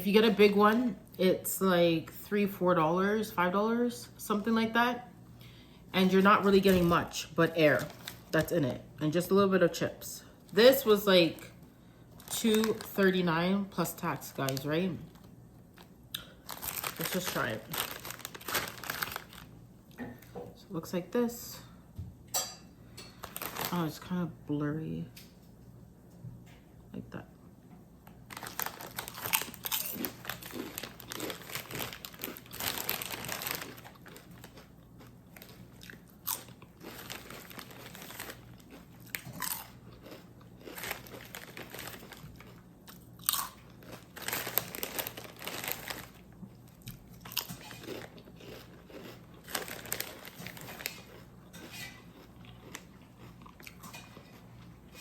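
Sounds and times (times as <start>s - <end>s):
person crunching potato chips: 14.3s - 19.6s, 23.2s - 24.0s, 28.3s - 54.4s.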